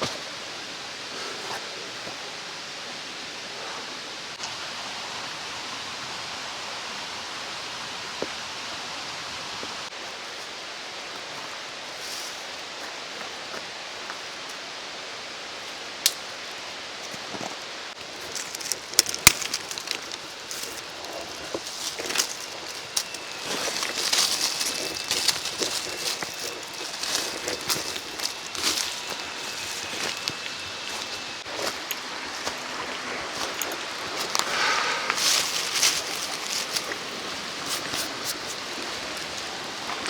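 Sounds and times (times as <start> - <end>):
mountain stream rushing: 17.3 - 40.0.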